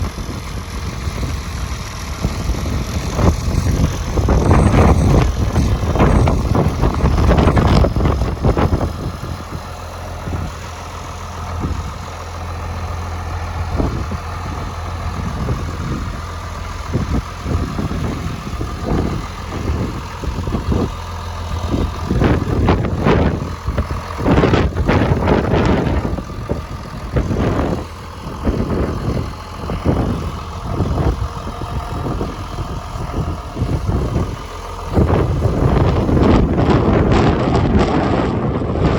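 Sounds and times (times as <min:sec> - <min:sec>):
tractor engine idling: 0:00.0 - 0:38.9.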